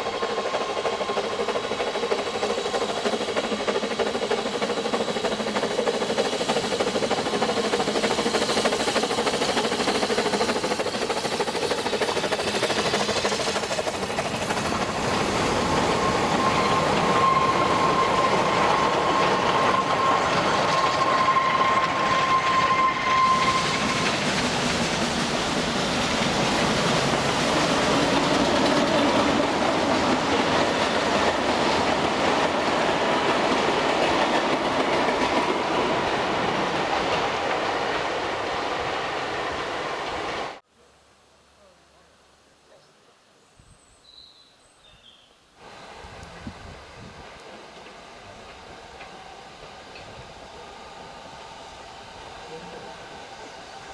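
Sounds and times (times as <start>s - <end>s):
train wheels clattering on rail: 0.0s - 40.6s, 45.6s - 53.9s
high squeal: 15.8s - 24.2s.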